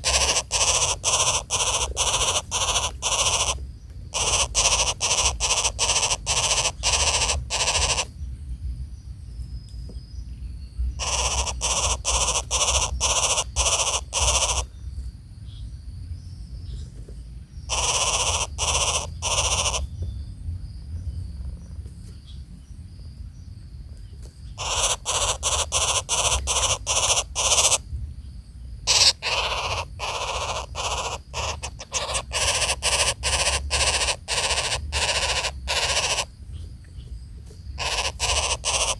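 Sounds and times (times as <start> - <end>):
harsh raspy bird calls: 0.0 - 8.3, 10.9 - 14.9, 17.6 - 20.0, 24.5 - 27.9, 28.8 - 38.9.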